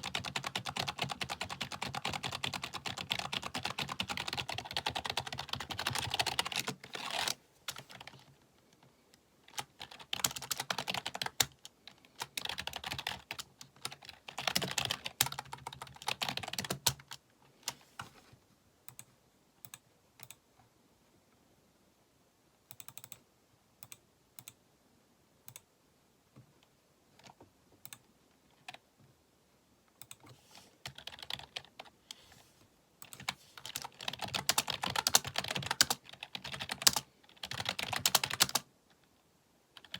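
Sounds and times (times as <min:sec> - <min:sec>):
computer keyboard typing: 0:00.0 - 0:08.3, 0:09.5 - 0:17.2, 0:18.9 - 0:20.4, 0:22.7 - 0:23.2, 0:23.8 - 0:24.6, 0:30.0 - 0:31.9, 0:33.0 - 0:38.7.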